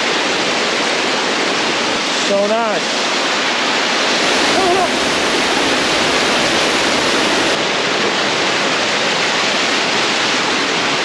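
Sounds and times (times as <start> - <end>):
waterfall rushing: 3.2 - 8.5.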